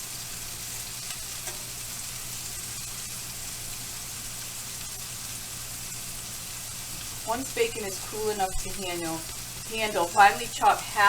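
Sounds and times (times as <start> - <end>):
burger patties sizzling in fat: 0.0 - 11.0.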